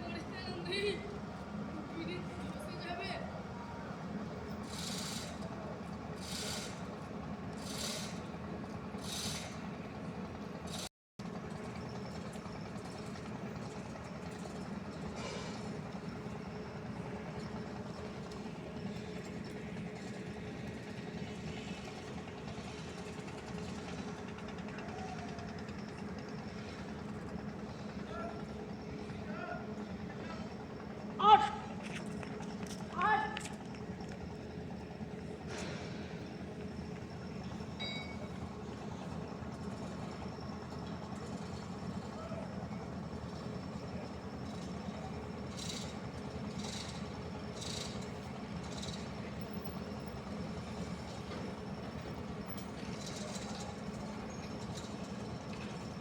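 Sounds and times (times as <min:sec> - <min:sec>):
constant hum: 0:00.0 - 0:56.0
vehicle engine rumble: 0:00.0 - 0:56.0
short high beep: 0:37.8 - 0:38.3.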